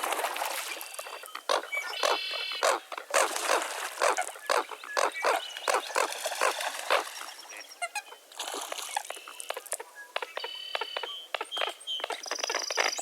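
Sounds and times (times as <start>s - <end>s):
birds harsh calls: 1.1s - 3.3s, 4.0s - 8.2s.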